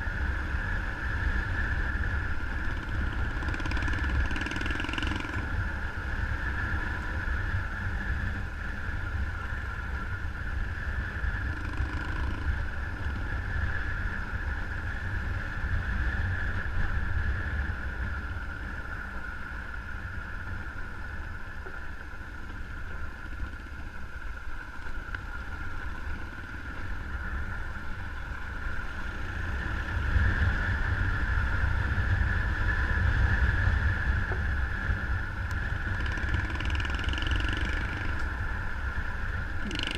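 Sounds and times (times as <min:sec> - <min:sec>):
motorcycle engine running: 0:00.0 - 0:39.9
wind rumbling on microphone: 0:00.0 - 0:39.9.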